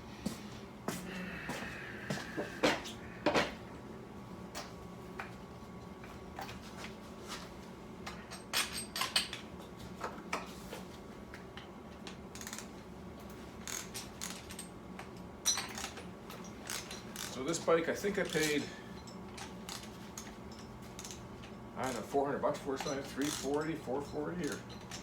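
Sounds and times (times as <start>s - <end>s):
metal tools clinking and knocking: 13.7s - 25.0s.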